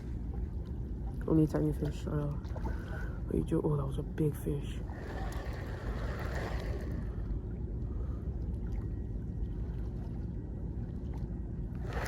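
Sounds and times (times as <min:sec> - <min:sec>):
wind rumble on microphone: 0:00.0 - 0:12.0
water lapping at rocks: 0:04.8 - 0:07.4, 0:11.0 - 0:12.0.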